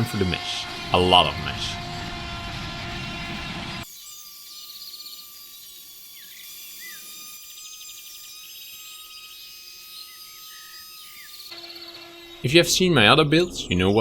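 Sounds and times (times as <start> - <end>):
steady high-pitched tone: 0.0 - 3.5, 12.4 - 14.0
small birds chirping and trilling: 0.0 - 14.0.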